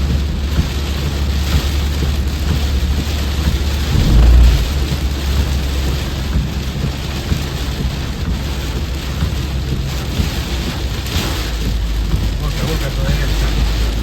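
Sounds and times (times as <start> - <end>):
heavy rain pouring: 0.0 - 14.0
thunder rumbling: 2.5 - 7.0.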